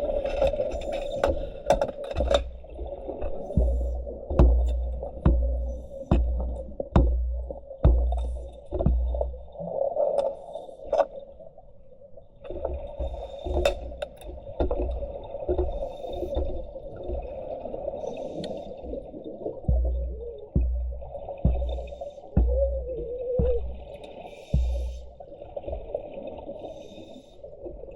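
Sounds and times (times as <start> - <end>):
underwater bubbling rumble: 0.0 - 10.5, 11.2 - 27.9
dull low thumps: 3.4 - 9.6, 19.6 - 25.8.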